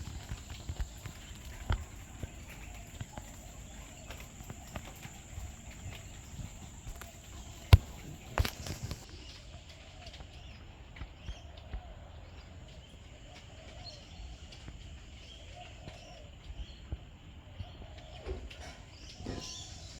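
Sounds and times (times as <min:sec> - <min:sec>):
insect hum: 0:00.0 - 0:10.6
faint bird calls: 0:00.0 - 0:20.0.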